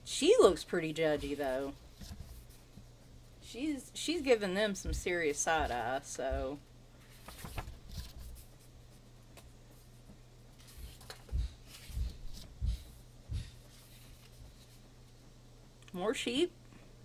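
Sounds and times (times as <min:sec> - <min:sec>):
paper pages rustling: 0:01.0 - 0:02.8, 0:07.0 - 0:12.9, 0:13.5 - 0:14.8.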